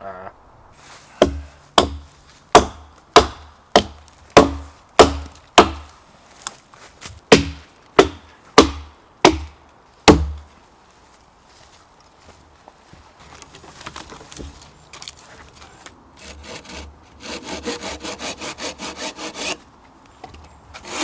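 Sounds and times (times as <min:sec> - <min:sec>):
tool striking wood: 0:01.2 - 0:05.9, 0:07.3 - 0:10.5.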